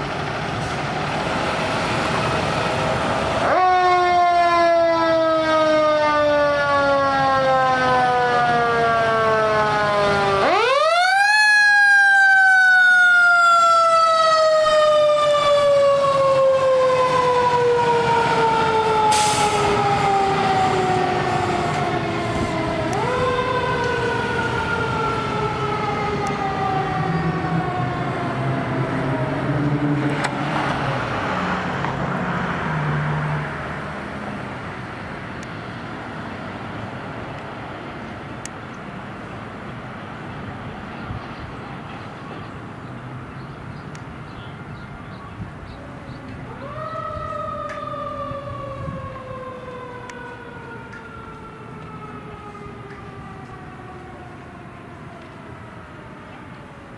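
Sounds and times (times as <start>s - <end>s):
truck engine rumbling: 0.0s - 4.2s, 12.4s - 56.9s.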